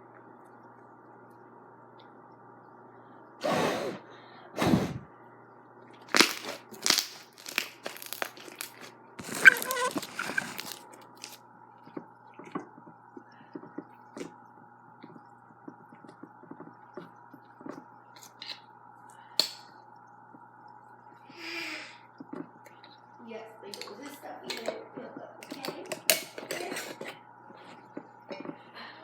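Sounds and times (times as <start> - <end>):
slime crackling and popping: 6.0 - 11.4.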